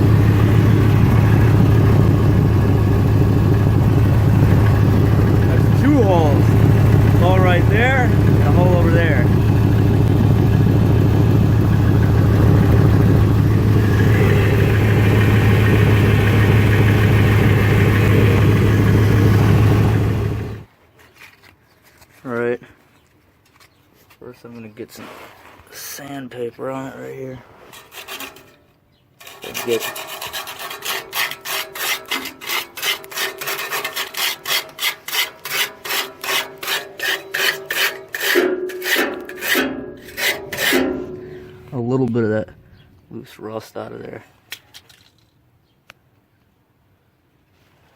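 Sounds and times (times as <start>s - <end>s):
van engine idling with exhaust leak: 0.0s - 20.7s
sandpaper scrubbing metal pipe: 29.2s - 41.4s.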